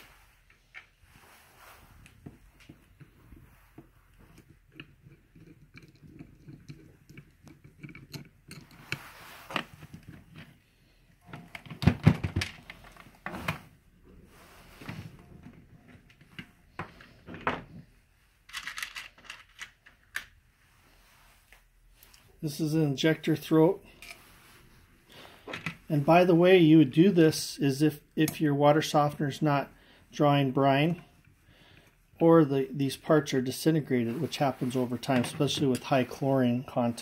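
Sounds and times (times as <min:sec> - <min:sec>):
small parts clicking and tapping: 0:03.8 - 0:10.6, 0:18.5 - 0:20.3.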